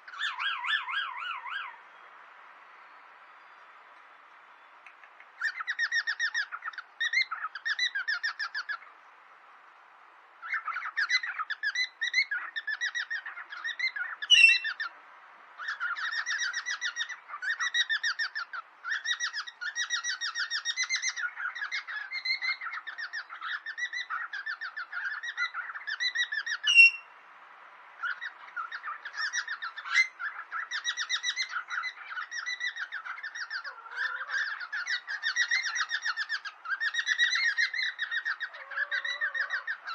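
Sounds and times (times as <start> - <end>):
sharp loud bird calls: 0.0 - 2.2, 2.8 - 9.0, 10.4 - 15.0, 15.6 - 27.2, 28.0 - 39.9
cockatiels chattering: 15.6 - 27.0, 28.0 - 39.9.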